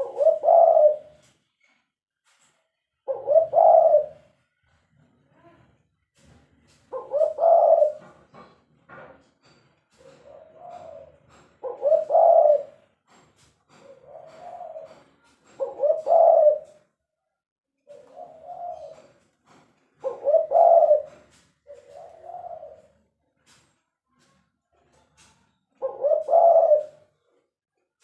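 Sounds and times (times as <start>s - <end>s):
dove cooing: 0.0s - 1.2s, 3.0s - 4.4s, 6.8s - 8.3s, 10.0s - 12.9s, 13.7s - 16.9s, 17.9s - 19.2s, 20.0s - 23.1s, 25.8s - 27.3s.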